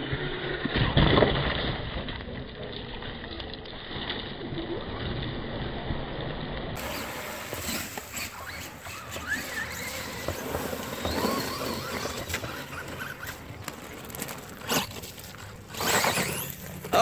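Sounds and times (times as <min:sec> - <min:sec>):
wheels churning mud: 0:00.0 - 0:17.0
electric motors whining: 0:06.8 - 0:17.0.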